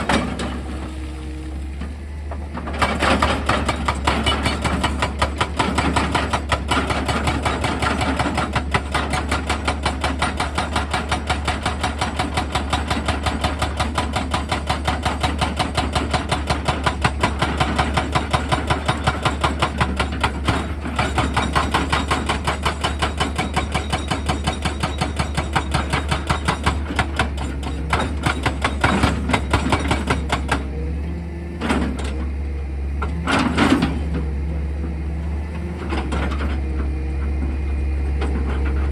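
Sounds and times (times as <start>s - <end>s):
excavator engine hum: 0.0s - 38.9s
hydraulic hammer hammering rock: 2.8s - 30.7s.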